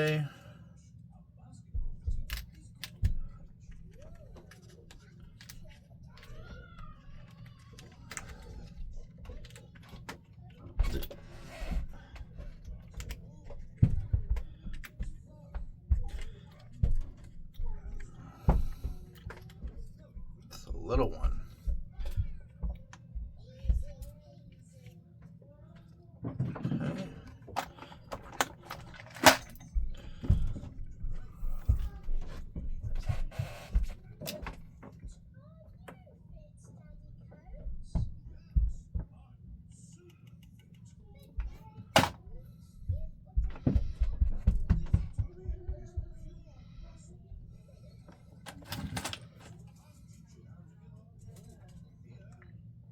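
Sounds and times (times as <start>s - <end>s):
steady low hum: 0.0s - 52.9s
tools clicking and knocking: 27.4s - 30.8s.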